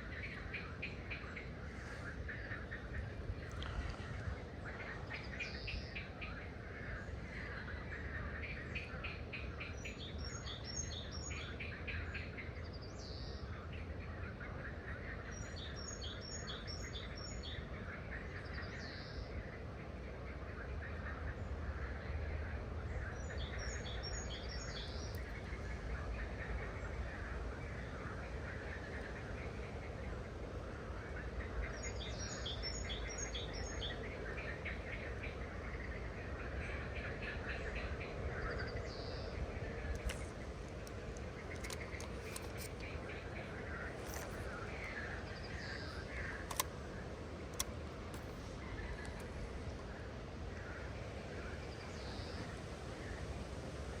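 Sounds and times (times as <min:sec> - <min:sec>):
low outdoor background noise: 0:00.0 - 0:54.0
birds chirping: 0:23.1 - 0:52.7.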